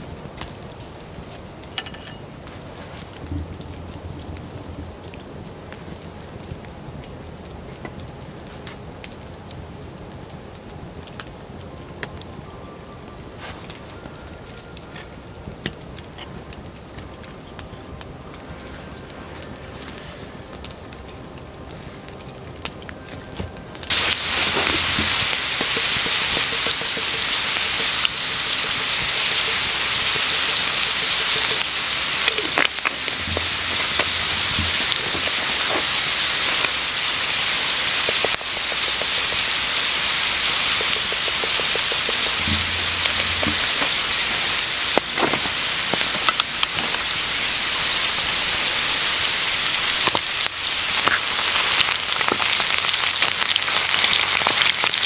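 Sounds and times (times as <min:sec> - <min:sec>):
food sizzling in a pan: 0:23.4 - 0:55.0.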